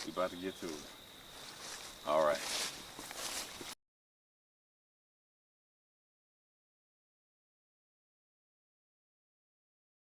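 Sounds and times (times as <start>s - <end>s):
faint outdoor background hiss: 0.0s - 3.8s.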